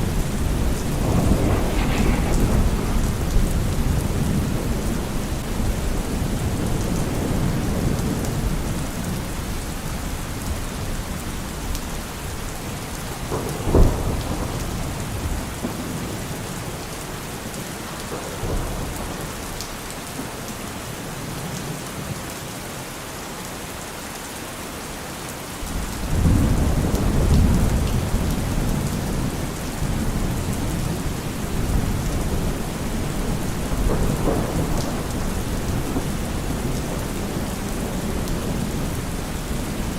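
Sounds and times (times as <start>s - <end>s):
sharp thunderclap: 0.0s - 8.0s, 33.6s - 38.9s
rolling thunder: 0.0s - 9.2s, 12.9s - 16.7s, 25.8s - 39.9s
heavy rain: 0.0s - 39.9s.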